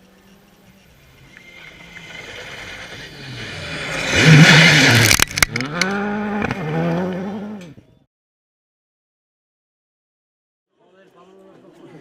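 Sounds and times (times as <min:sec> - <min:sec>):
rally car engine at full throttle: 0:01.3 - 0:07.8.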